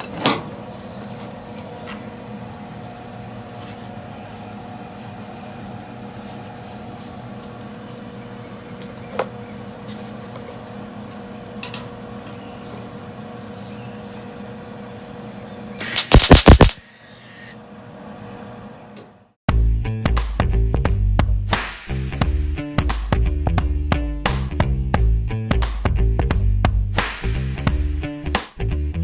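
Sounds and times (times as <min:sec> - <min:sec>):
welding crackle: 0:15.8 - 0:17.3
steady hum: 0:15.8 - 0:17.6.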